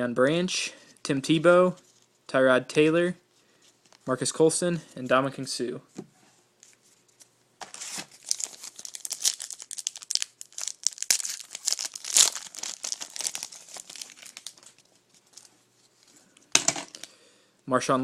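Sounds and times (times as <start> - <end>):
plastic wrapper tearing and crinkling: 7.6 - 16.1, 16.8 - 17.1.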